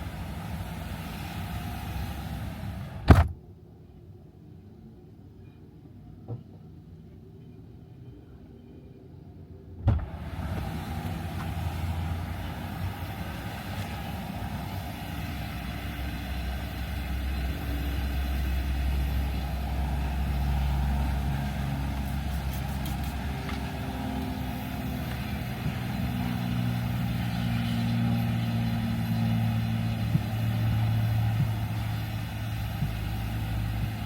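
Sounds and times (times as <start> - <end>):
steady low rumble: 0.0 - 3.8, 9.8 - 34.0
low hum: 9.9 - 34.0.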